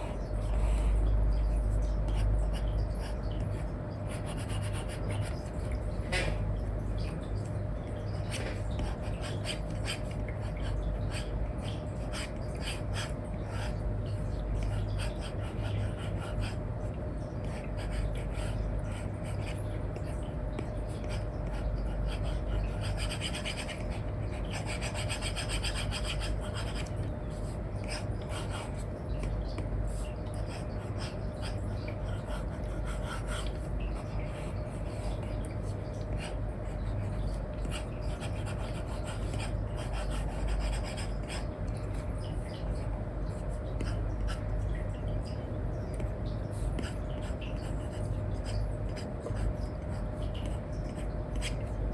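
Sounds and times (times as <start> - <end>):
faint hum: 0.0 - 51.9
stylus scratching on screen film: 17.5 - 29.0.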